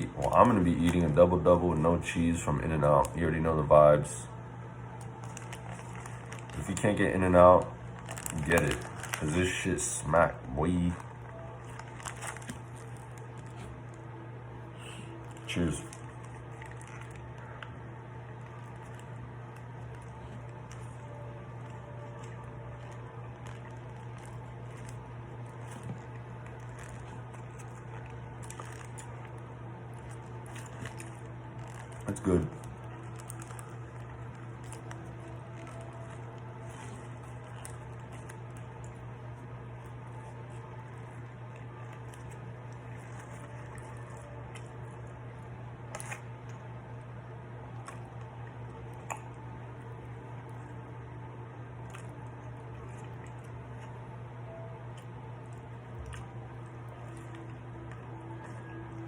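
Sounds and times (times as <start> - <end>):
low hum: 0.0 - 59.0
wet chewing: 14.9 - 46.7, 47.7 - 59.0.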